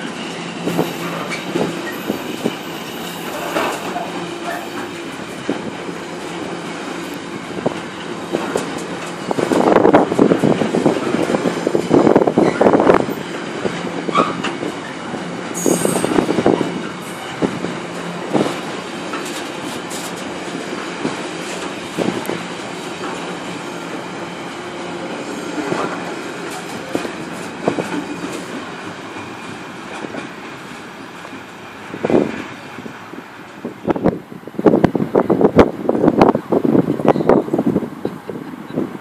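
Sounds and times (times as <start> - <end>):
high wheel squeal: 0.0 - 5.1, 14.1 - 17.3
wheels clacking and knocking: 6.5 - 23.4.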